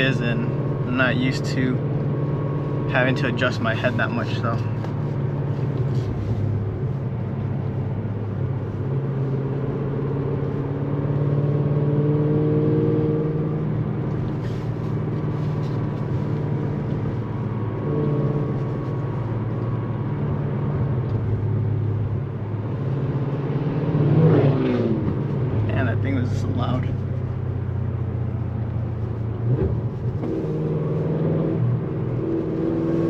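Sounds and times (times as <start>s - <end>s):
car engine running: 0.0s - 33.0s
road noise: 0.0s - 33.0s.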